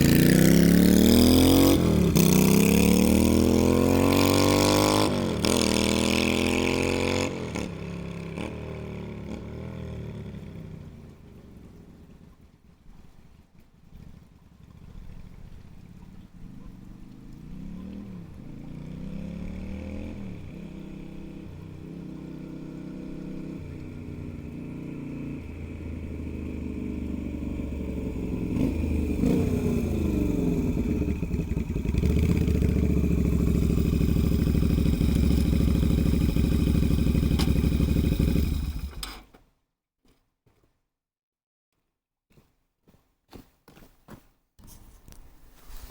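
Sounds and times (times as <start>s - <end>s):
motorcycle engine revving: 0.0s - 11.8s, 16.7s - 39.3s.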